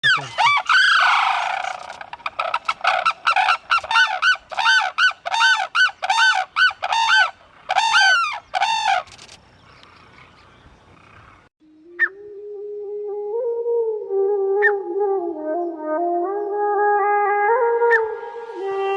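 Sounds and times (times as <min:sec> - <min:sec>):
bird harsh calls: 0:00.0 - 0:11.5.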